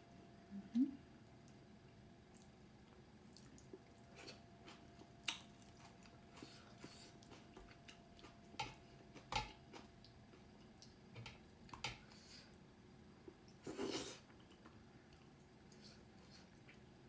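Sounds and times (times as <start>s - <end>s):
person chewing food: 3.3s - 12.6s.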